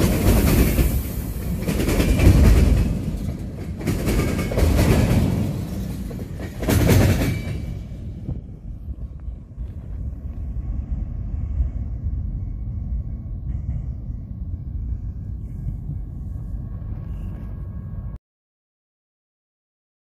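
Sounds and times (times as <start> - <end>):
freight train rumbling: 0.0 - 18.2.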